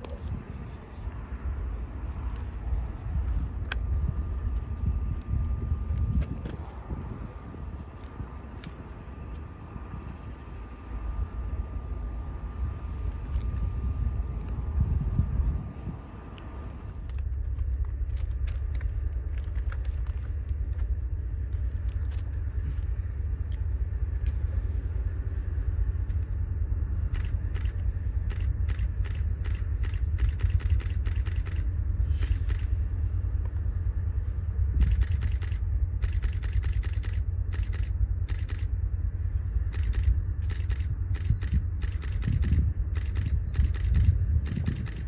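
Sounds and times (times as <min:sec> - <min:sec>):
distant freight train rumble: 0:00.0 - 0:45.0.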